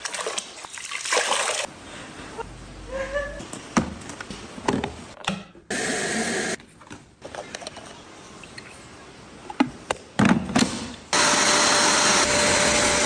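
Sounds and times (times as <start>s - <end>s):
water splashing and sloshing: 0.0s - 1.7s.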